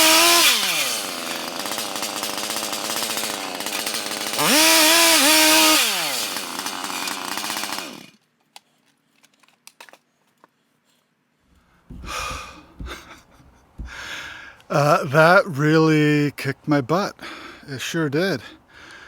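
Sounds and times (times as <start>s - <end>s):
chainsaw running: 0.0s - 8.2s, 11.9s - 13.2s, 13.8s - 14.9s.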